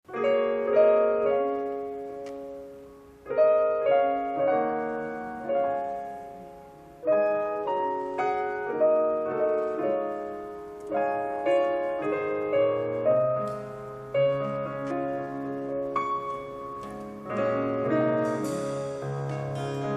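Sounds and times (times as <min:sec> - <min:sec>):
keyboard playing gentle chords: 0:00.0 - 0:19.9.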